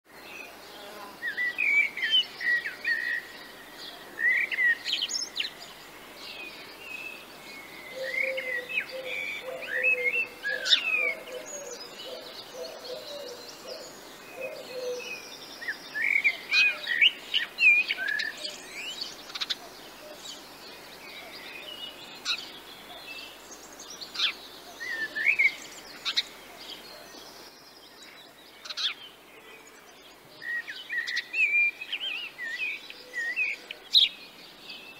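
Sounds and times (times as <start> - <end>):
songbirds chirping: 0.1 - 34.9
lower wavering bird call: 7.9 - 15.1.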